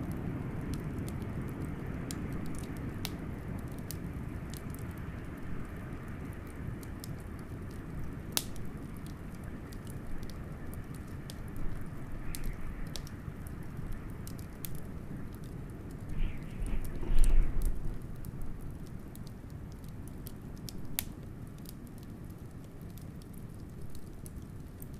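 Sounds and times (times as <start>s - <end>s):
wood fire crackling: 0.0s - 24.9s
low rumble: 16.0s - 18.4s
wind rushing: 16.1s - 18.0s.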